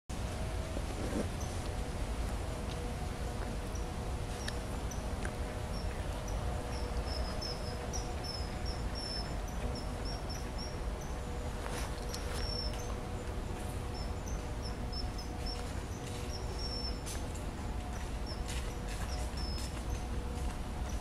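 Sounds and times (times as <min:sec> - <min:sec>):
faint steady hum: 0:00.1 - 0:21.0
bird calling: 0:03.6 - 0:17.2, 0:18.0 - 0:20.1.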